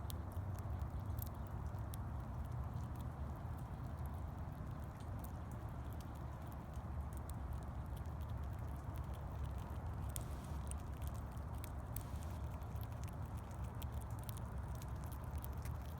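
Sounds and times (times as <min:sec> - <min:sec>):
squirrel gnawing: 0:00.0 - 0:15.9.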